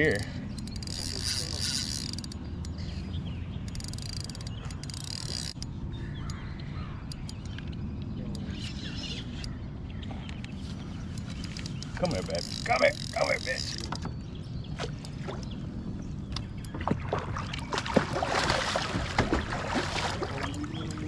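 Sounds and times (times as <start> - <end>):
wind and water rumble: 0.0 - 21.0
fishing reel drag ratcheting: 0.1 - 2.8, 3.6 - 6.4, 11.2 - 14.0.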